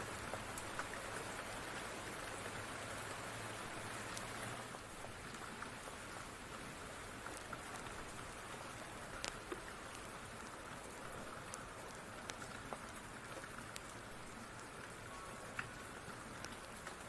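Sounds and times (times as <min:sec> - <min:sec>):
rain falling: 0:00.0 - 0:17.0
wood fire crackling: 0:00.1 - 0:02.2, 0:03.6 - 0:17.0.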